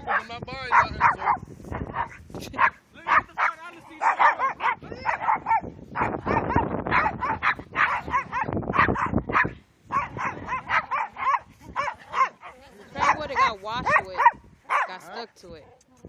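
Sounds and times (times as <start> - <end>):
dog barking: 0.0 - 15.1.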